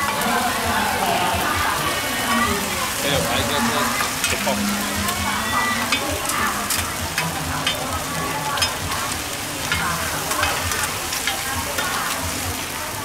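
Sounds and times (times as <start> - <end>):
food sizzling in a pan: 0.0 - 13.0
utensil clicking against pan: 5.8 - 12.4.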